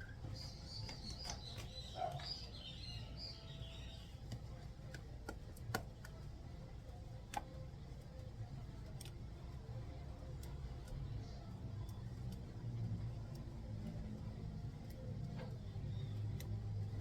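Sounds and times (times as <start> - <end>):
small birds chirping: 0.0 - 4.6, 10.4 - 14.4, 15.0 - 17.0.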